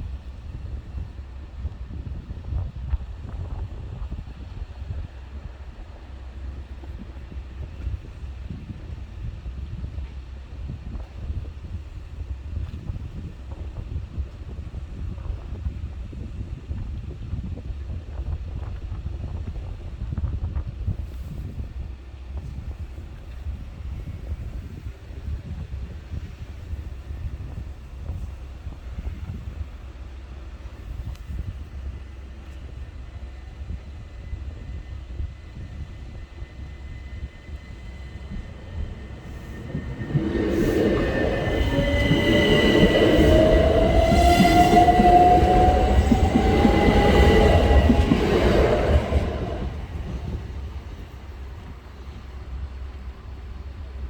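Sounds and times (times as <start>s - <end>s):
electric train rumbling: 22.3s - 54.0s
wind buffeting microphone: 33.6s - 54.0s
train motor whine rising: 36.0s - 51.1s.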